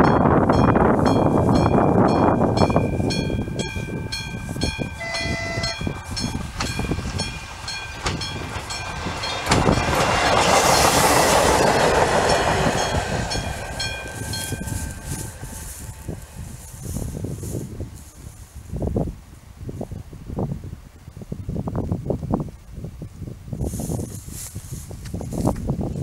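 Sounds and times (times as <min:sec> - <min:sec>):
level crossing bell ringing: 0:00.0 - 0:10.0
train rumble: 0:00.0 - 0:20.7
train horn note: 0:04.2 - 0:06.9.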